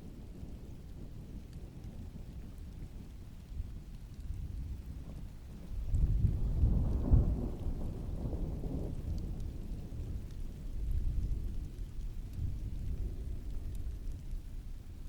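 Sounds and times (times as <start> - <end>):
heavy rain: 0.0 - 15.0
distant thunder rumbling: 3.8 - 14.2.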